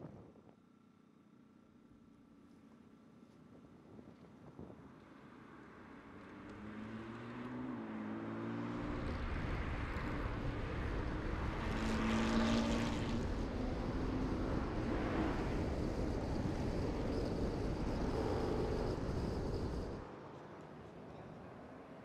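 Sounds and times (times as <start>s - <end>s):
sports car engines approaching: 5.0s - 21.0s
engine and wind rumble from inside car: 8.5s - 20.1s.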